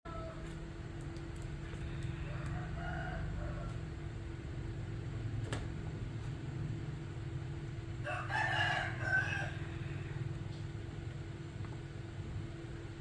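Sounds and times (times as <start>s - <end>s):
rooster crowing: 0.1s - 0.4s, 1.8s - 4.1s, 8.0s - 10.4s.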